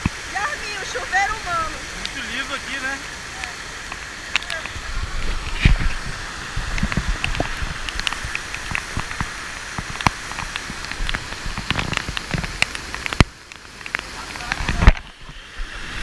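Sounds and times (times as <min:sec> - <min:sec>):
water drops splashing: 0:00.0 - 0:04.8
waterfall pouring: 0:00.0 - 0:16.0.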